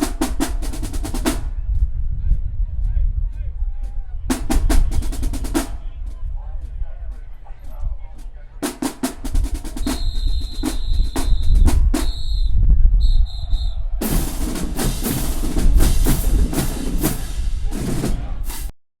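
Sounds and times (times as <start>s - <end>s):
drumline playing snare and bass: 0.0s - 1.6s, 4.3s - 7.3s, 8.1s - 12.6s, 14.0s - 18.7s.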